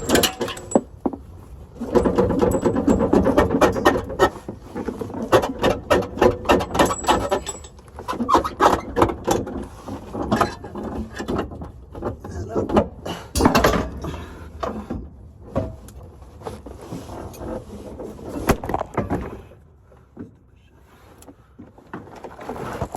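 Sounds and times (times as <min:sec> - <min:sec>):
metallic clicks and knocks: 0:00.0 - 0:01.0, 0:01.8 - 0:04.4, 0:05.2 - 0:07.9, 0:13.4 - 0:14.8.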